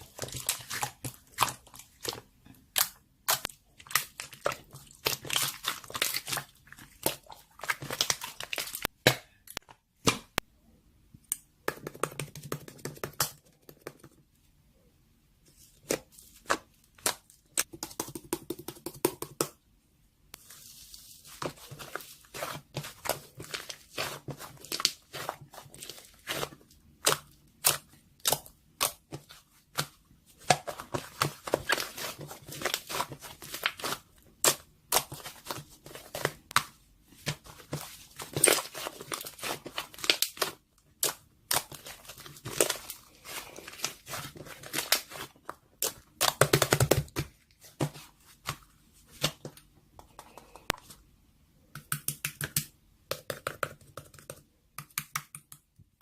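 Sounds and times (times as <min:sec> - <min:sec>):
clicks and taps of handling: 0:51.7 - 0:56.0.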